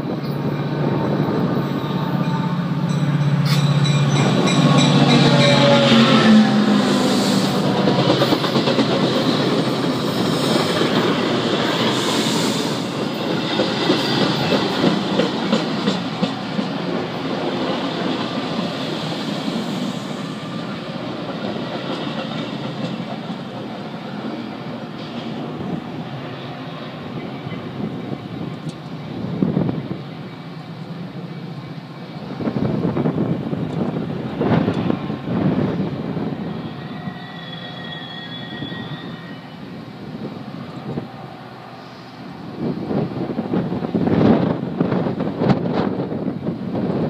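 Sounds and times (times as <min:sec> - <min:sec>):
train wheels clacking over rail joints: 0:03.4 - 0:19.9, 0:20.6 - 0:24.4.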